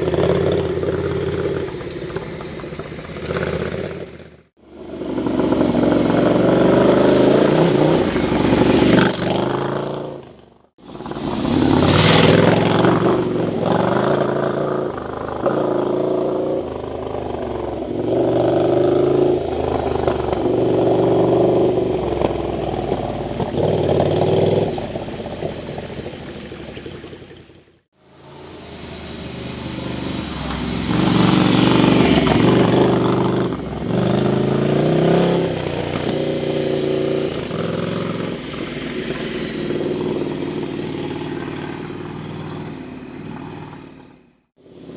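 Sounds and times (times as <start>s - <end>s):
motorcycle engine revving: 0.0s - 44.9s
hiss: 28.2s - 32.4s.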